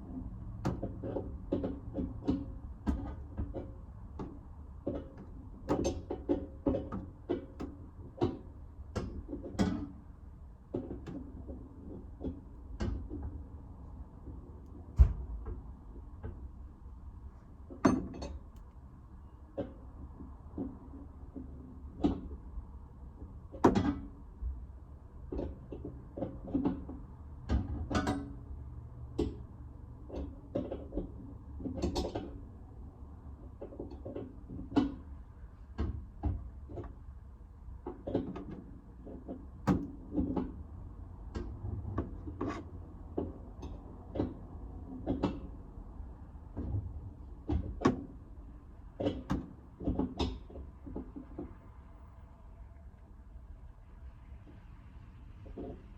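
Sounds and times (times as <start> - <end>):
steady low hum: 45.6 - 55.9.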